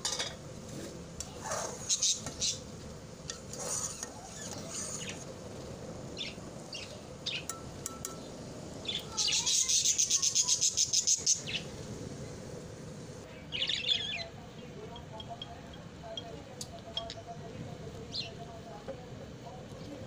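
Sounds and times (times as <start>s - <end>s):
birds chirping: 1.6s - 2.9s, 3.7s - 18.7s.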